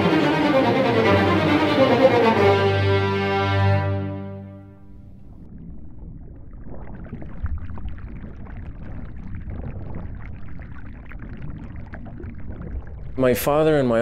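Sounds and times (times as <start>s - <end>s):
low uneven rumble: 4.6s - 14.0s
water splashing and lapping: 4.9s - 13.3s
small irregular crackles: 5.2s - 13.2s.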